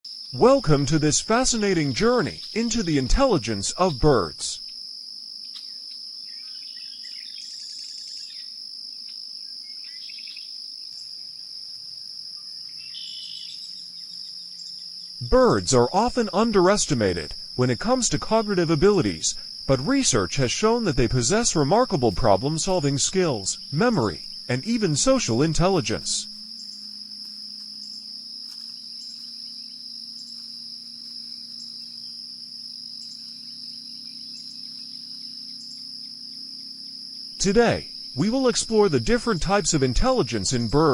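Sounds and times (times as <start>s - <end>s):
insect trill: 0.1s - 40.9s
faint low hum: 0.3s - 4.7s, 12.6s - 40.9s
bird chirping: 5.4s - 8.5s, 9.6s - 11.2s, 12.4s - 27.1s, 32.9s - 40.9s.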